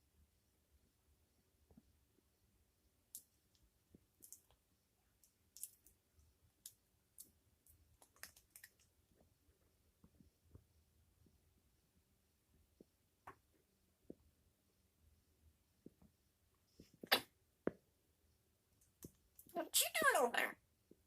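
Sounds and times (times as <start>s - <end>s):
parrot preening clicks and rustles: 3.1s - 9.3s.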